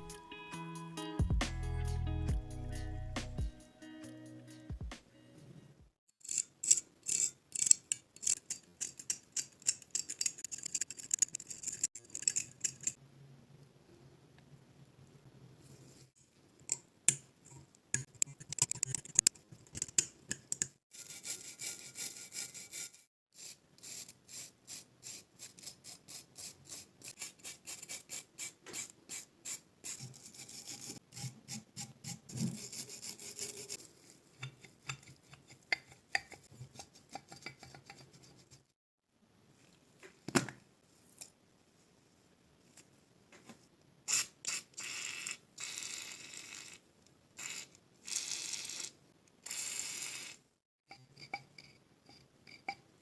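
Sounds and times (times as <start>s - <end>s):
scraping on metal pipe wrench: 6.2s - 13.0s, 32.1s - 38.4s.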